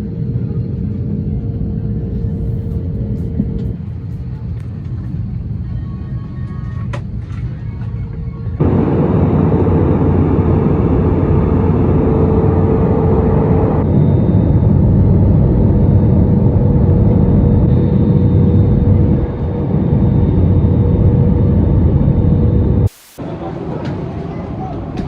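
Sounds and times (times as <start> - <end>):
vehicle rumble: 1.5 - 24.2
faint steady hum: 1.8 - 23.3.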